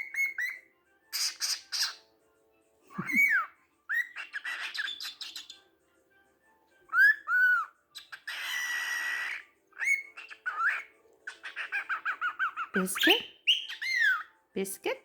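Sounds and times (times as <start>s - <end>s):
cockatiel whistles: 0.0s - 2.0s, 3.0s - 5.6s, 6.9s - 14.3s
cockatiel chirps: 0.0s - 2.1s, 2.9s - 5.6s, 6.9s - 14.4s
cockatiel buzzy screech: 7.0s - 12.8s.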